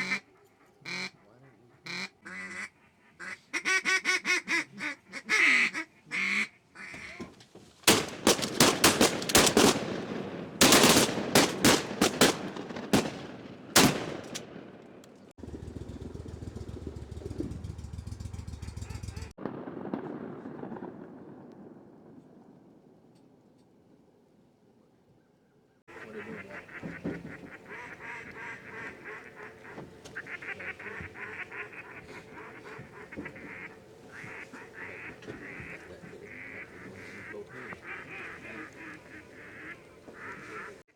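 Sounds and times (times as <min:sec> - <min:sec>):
ducks quacking: 0:00.0 - 0:07.3, 0:10.6 - 0:13.1, 0:25.9 - 0:40.9
shotgun shots: 0:07.9 - 0:15.3, 0:25.9 - 0:40.7.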